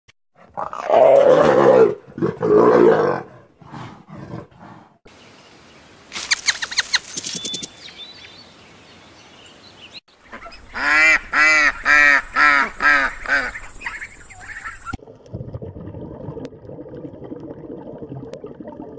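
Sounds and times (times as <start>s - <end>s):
duck quacking: 10.2s - 14.9s.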